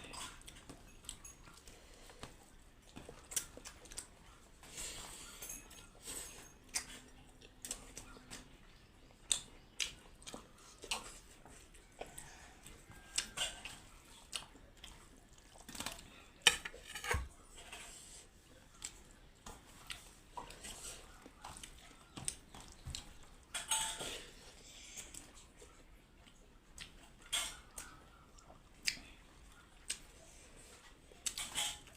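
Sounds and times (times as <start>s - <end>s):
dishes and utensils clinking: 16.4s - 17.8s, 23.5s - 24.4s.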